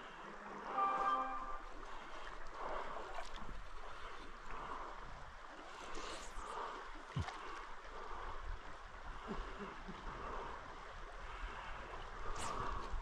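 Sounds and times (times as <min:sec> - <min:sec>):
creek water running: 0:00.0 - 0:13.0.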